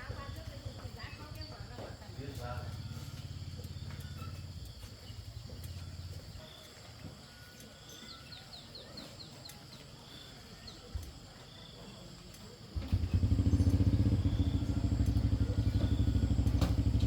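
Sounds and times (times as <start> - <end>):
bird chirping: 0.0 - 12.6, 13.5 - 17.0.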